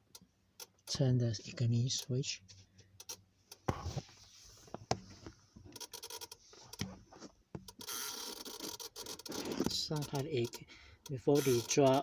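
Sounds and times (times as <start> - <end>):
scratchy crackling buzz: 11.3 - 12.0.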